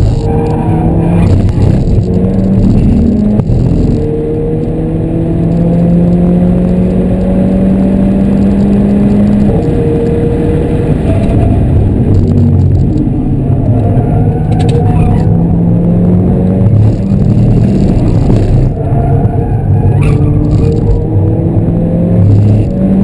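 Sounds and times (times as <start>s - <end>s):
car engine accelerating hard: 0.0s - 23.0s.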